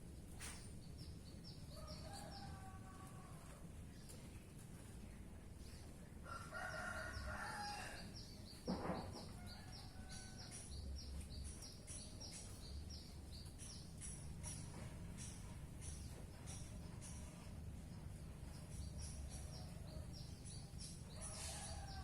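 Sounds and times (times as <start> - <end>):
rooster crowing: 6.2 - 8.1.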